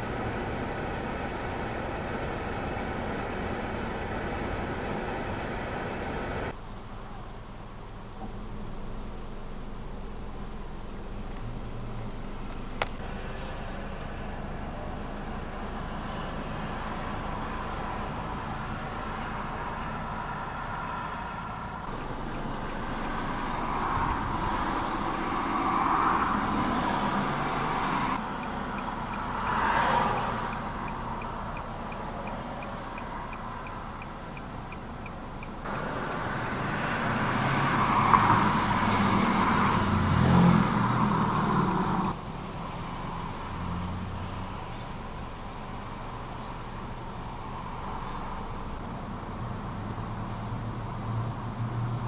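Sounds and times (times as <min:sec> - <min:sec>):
street traffic: 0:00.0 - 0:52.0
vehicle passing: 0:11.5 - 0:45.2.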